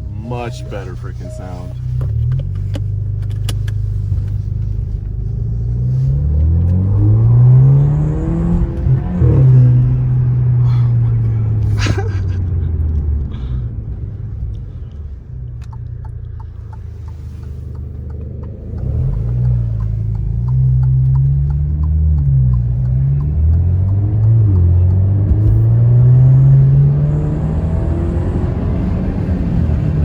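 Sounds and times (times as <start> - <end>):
car engine rumble accelerating: 0.0 - 30.0
light ticking: 14.4 - 25.3.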